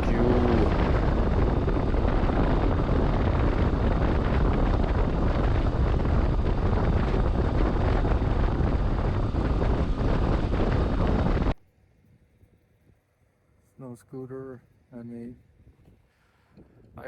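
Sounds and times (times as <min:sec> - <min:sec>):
road noise: 0:00.0 - 0:03.4
motorcycle engine at speed: 0:00.0 - 0:11.5
wind rushing over microphone: 0:00.0 - 0:11.6.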